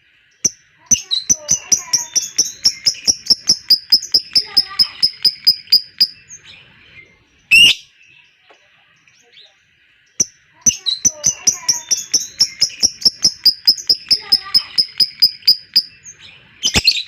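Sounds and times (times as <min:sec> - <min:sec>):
bird chirping rapidly: 0:00.4 - 0:08.0, 0:10.1 - 0:17.0
bird harsh squawk: 0:01.0 - 0:06.2, 0:07.5 - 0:07.9.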